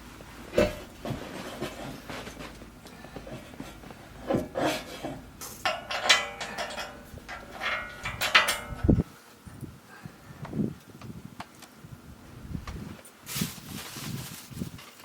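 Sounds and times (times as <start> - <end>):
hard objects knocking and clattering: 0.6 - 9.0.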